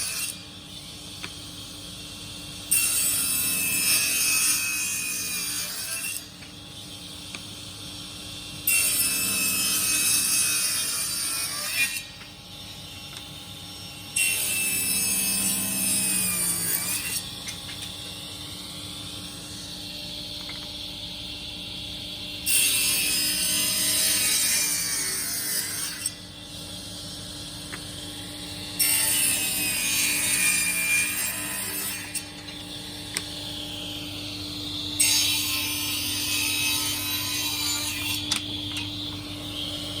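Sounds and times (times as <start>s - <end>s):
power saw cutting wood: 8.7s - 12.1s, 28.8s - 32.5s, 35.0s - 38.4s.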